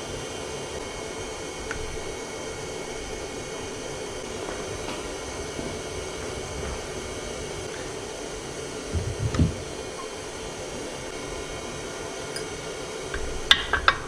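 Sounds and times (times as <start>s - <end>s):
fan motor whirring: 0.0s - 14.0s
dull low thumps: 8.9s - 9.7s.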